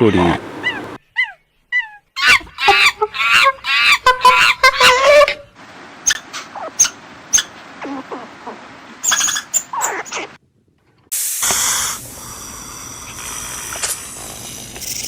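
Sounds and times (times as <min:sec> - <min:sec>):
steady hiss-like noise: 0:00.0 - 0:01.0, 0:05.6 - 0:09.0
animal squeaking calls: 0:00.4 - 0:05.4, 0:06.0 - 0:10.4.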